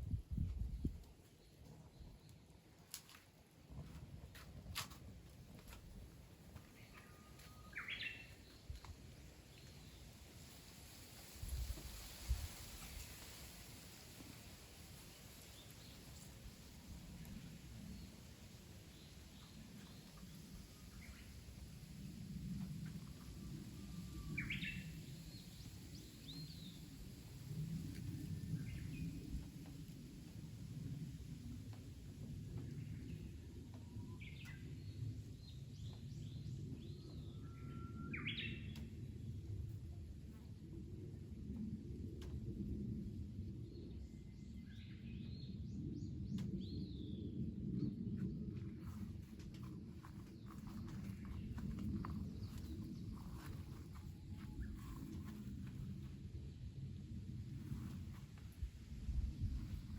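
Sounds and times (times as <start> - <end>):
low rumbling background noise: 0.0 - 59.9
small birds chirping: 48.8 - 55.8.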